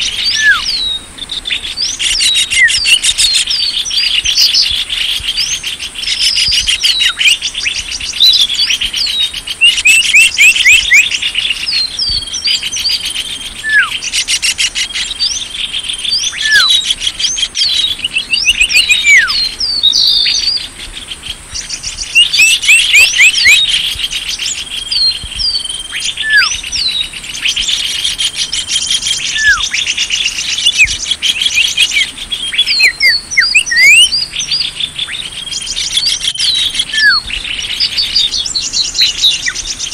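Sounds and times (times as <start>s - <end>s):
songbirds chirping and trilling: 0.0s - 39.9s
sharp down-slurred whistle: 0.2s - 1.4s, 13.6s - 14.0s, 16.1s - 16.9s, 18.3s - 20.6s, 24.7s - 27.1s, 29.3s - 29.9s, 31.5s - 34.6s, 35.4s - 37.3s.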